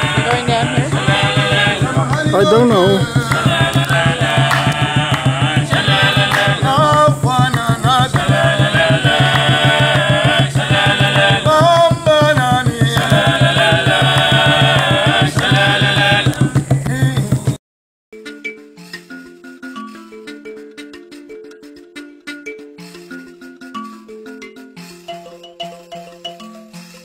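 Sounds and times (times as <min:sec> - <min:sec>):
fast steady drumming: 0:00.0 - 0:17.6
voices singing chant-like: 0:00.0 - 0:17.6.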